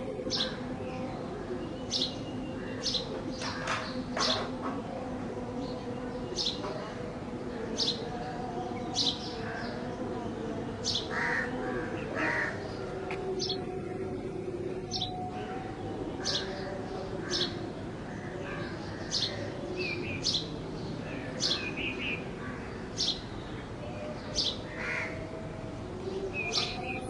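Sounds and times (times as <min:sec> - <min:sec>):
sparrows chirping: 0:00.0 - 0:27.0.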